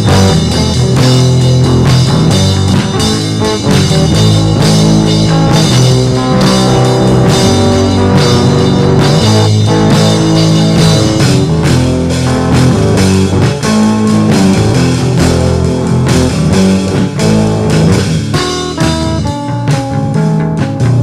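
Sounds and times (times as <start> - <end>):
bass guitar: 0.0 - 21.0
drum kit beat: 0.0 - 21.0
electric guitars: 0.0 - 21.0.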